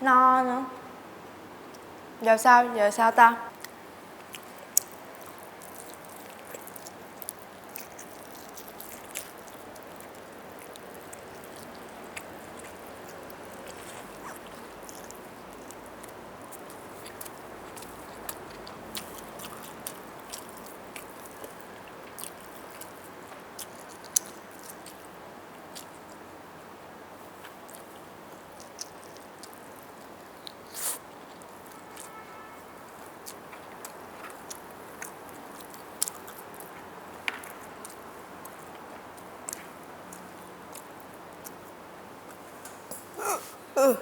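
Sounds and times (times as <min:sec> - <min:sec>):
steady background hiss: 0:00.0 - 0:44.0
crunchy bite: 0:03.6 - 0:21.6
wet chewing and mouth clicks: 0:03.6 - 0:26.2, 0:27.4 - 0:43.5.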